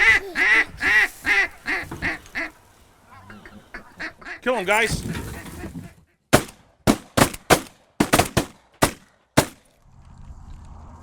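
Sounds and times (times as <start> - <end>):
shotguns firing with echo: 6.3 - 9.6.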